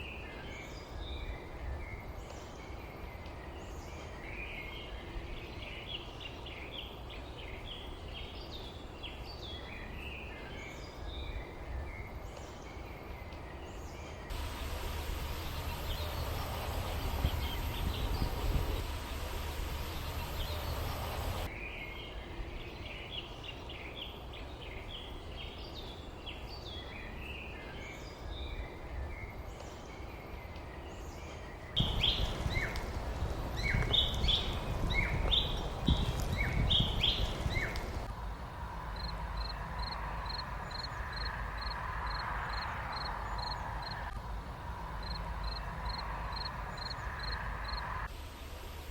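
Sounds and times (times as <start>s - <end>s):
small birds chirping: 0.0s - 38.1s
low background rumble: 14.3s - 21.5s
steady hiss: 14.3s - 21.5s, 31.8s - 38.1s, 47.8s - 48.9s.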